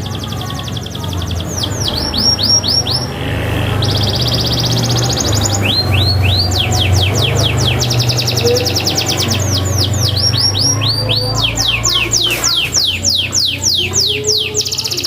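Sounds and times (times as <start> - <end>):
canary singing: 0.0 - 15.0
low hum: 1.2 - 12.2.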